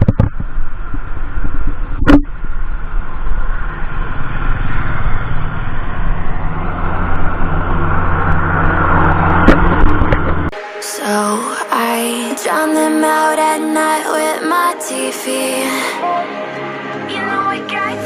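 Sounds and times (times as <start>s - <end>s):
moving vehicle rumble: 0.0s - 10.6s.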